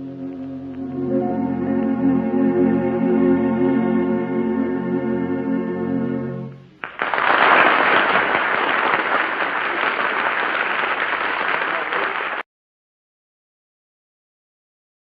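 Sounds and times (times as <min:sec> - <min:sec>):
musical chord: 0:00.0 - 0:06.7
studio audience applauding: 0:06.8 - 0:12.5.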